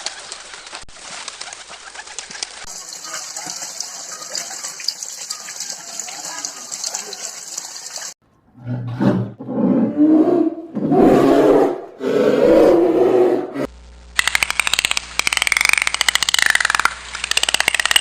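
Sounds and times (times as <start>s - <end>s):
large animal roaring: 8.6s - 13.7s.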